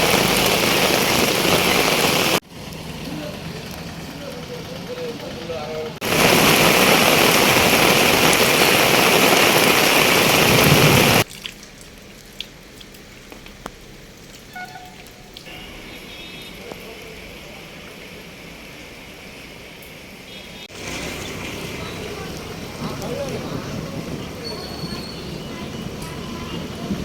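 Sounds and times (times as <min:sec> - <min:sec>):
heavy rain hissing: 0:00.0 - 0:03.6, 0:06.0 - 0:11.3, 0:13.9 - 0:27.0
scattered drips and clicks: 0:11.2 - 0:15.5.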